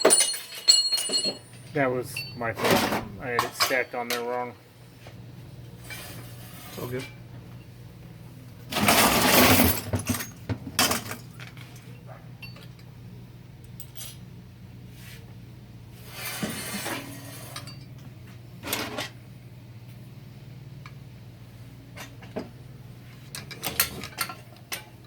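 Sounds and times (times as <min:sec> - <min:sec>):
metal parts clattering: 0:00.0 - 0:04.2
steady low hum: 0:00.2 - 0:25.0.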